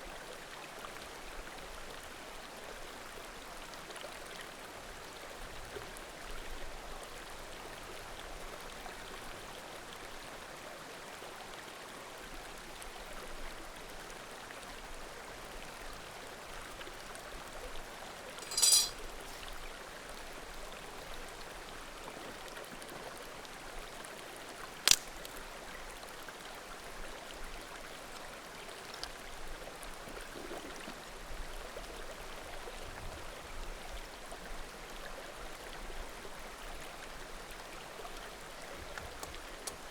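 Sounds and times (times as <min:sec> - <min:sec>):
burning wood popping: 0:24.9 - 0:25.3
firewood crackling: 0:24.9 - 0:25.4.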